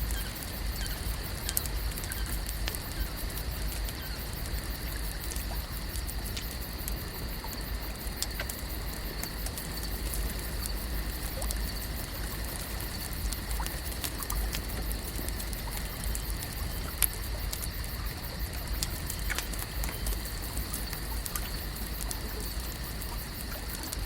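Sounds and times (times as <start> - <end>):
water trickling and lapping: 0.1 - 24.0.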